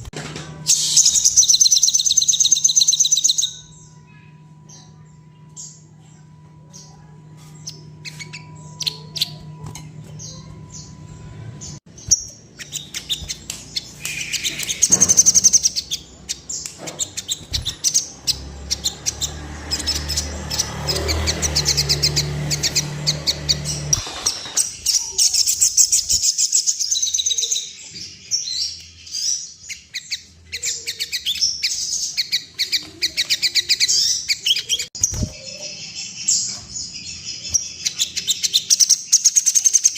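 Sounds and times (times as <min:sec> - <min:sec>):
bird chirping trills: 0:00.0 - 0:39.9.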